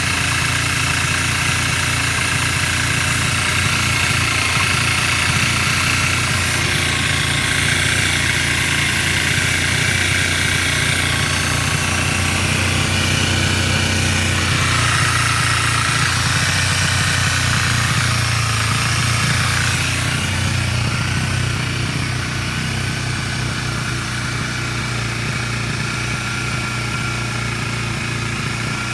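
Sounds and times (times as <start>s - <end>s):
motorcycle engine idling: 0.0s - 28.9s
high-pitched whine over engine: 2.8s - 28.0s.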